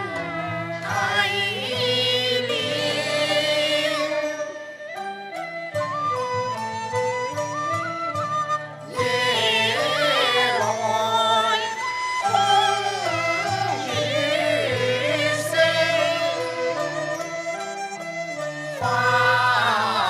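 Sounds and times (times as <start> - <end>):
traditional instrumental ensemble: 0.0 - 20.0.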